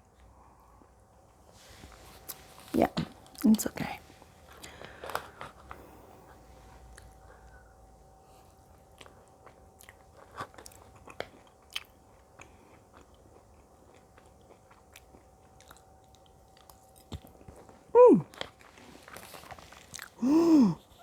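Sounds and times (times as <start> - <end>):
chewing and biting food: 8.5 - 20.2.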